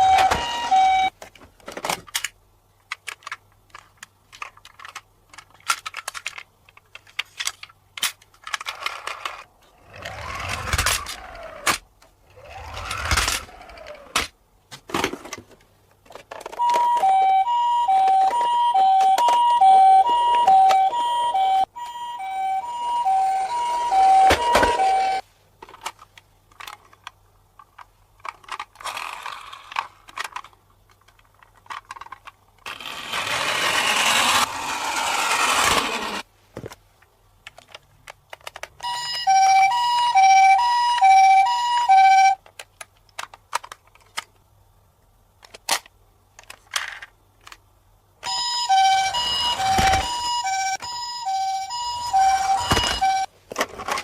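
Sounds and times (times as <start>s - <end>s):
toy siren two-tone: 0.0s - 1.1s, 16.6s - 25.2s, 38.8s - 42.4s, 48.2s - 53.3s.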